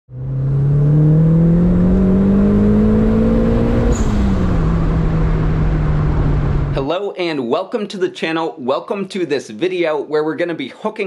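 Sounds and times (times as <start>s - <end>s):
turbocharged car engine accelerating: 0.1s - 6.8s.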